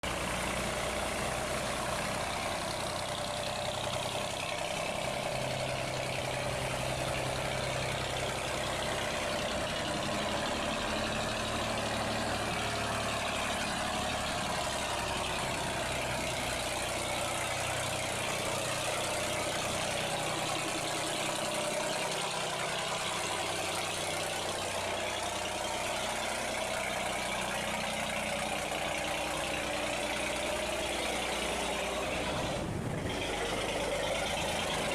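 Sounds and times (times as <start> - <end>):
boat engine running: 0.0 - 34.9.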